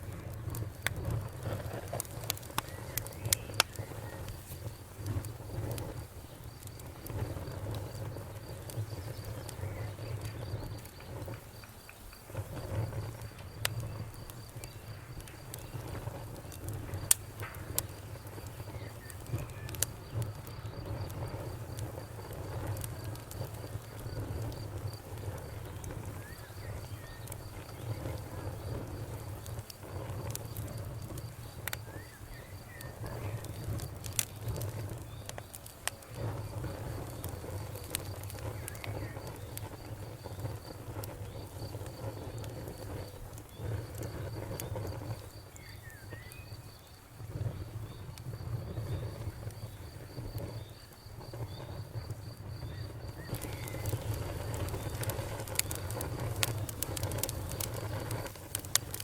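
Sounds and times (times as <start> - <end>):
campfire crackling and popping: 0.0 - 59.0
crickets chirping: 0.1 - 59.0.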